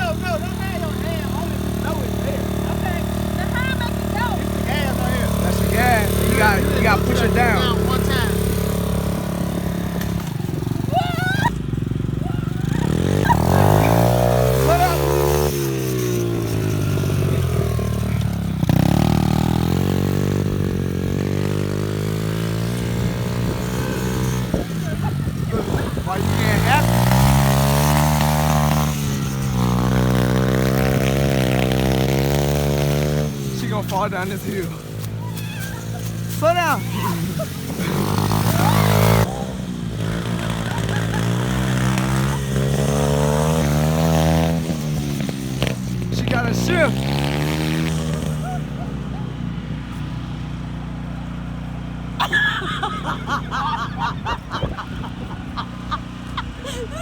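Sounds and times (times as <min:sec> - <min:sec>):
dirt bike engine running: 0:00.0 - 0:57.0
person laughing: 0:10.9 - 0:11.6, 0:12.2 - 0:15.1, 0:24.5 - 0:27.0, 0:35.2 - 0:39.2, 0:40.3 - 0:42.9, 0:48.4 - 0:49.3, 0:52.2 - 0:57.0.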